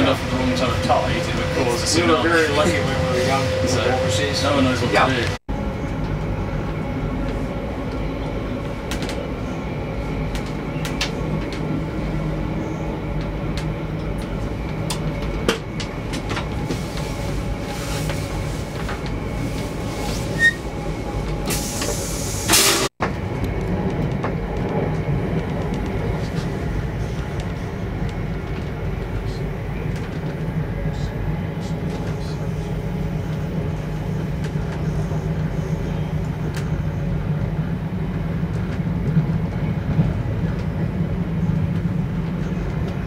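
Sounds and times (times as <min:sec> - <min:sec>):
train car rumbling: 0:00.0 - 0:43.0.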